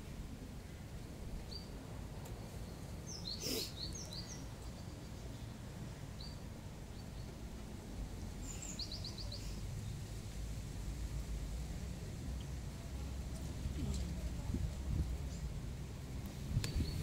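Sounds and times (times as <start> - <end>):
small birds chirping: 0.6 - 7.6, 8.3 - 10.4, 16.2 - 17.0.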